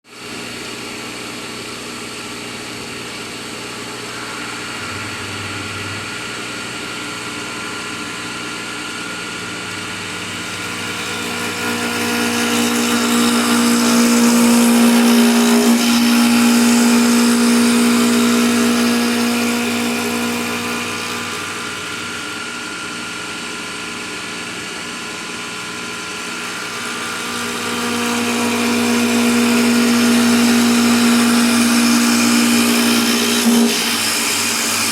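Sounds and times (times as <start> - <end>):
lathe motor hum: 3.8 - 7.4, 9.0 - 23.0, 25.8 - 34.9
rushing noise: 4.6 - 6.8.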